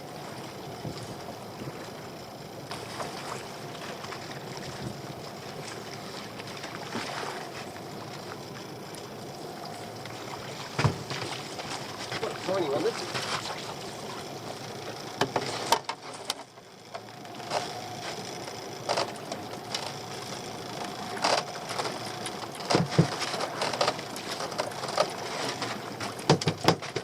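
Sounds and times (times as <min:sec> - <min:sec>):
water: 0:00.0 - 0:27.0
wind: 0:00.0 - 0:27.0.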